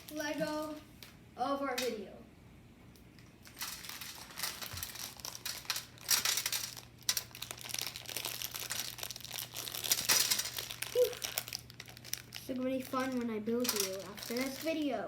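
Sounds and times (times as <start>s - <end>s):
plastic packaging crinkling: 3.2s - 15.0s.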